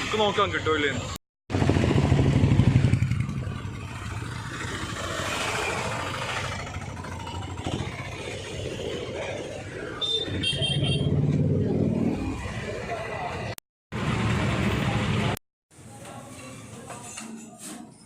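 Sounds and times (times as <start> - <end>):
street traffic noise: 0.0 - 18.0
motorcycle-like engine running: 1.5 - 9.9.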